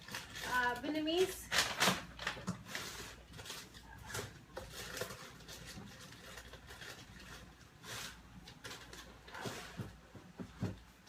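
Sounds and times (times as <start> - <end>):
faint handling rustles and knocks: 8.4 - 11.0.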